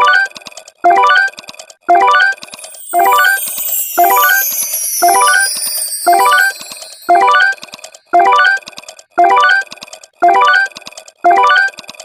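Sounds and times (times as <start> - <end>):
rising bell-like jingle: 2.4 - 8.1.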